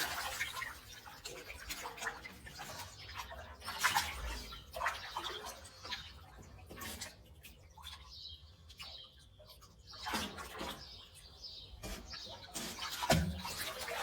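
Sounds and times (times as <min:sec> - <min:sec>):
water splashing: 0:00.0 - 0:08.0, 0:09.8 - 0:14.0
birds chirping: 0:07.6 - 0:14.0.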